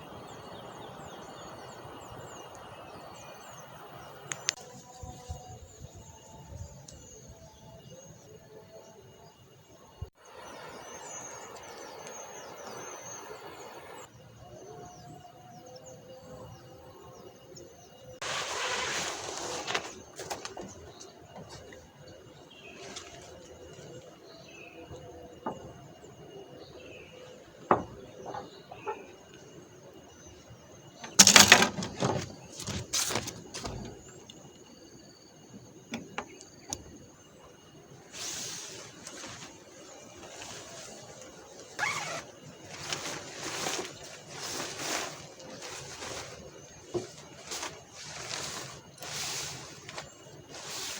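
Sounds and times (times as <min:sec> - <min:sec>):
rustling and clattering: 0:18.2 - 0:24.2, 0:30.8 - 0:34.6, 0:38.2 - 0:50.9.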